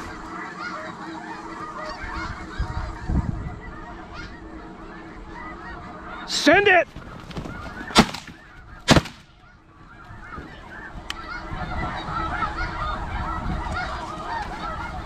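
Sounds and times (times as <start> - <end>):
flock of geese honking: 0.0 - 15.0
shotgun blast: 7.9 - 9.4.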